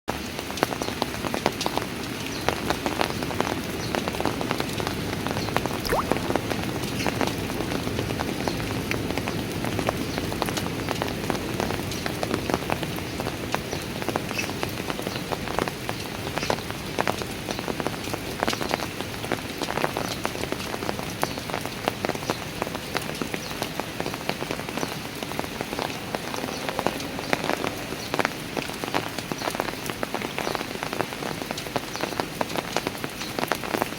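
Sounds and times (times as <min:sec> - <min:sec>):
rain on stone steps: 0:00.1 - 0:06.5, 0:07.4 - 0:33.9
water drips splashing: 0:05.8 - 0:07.0.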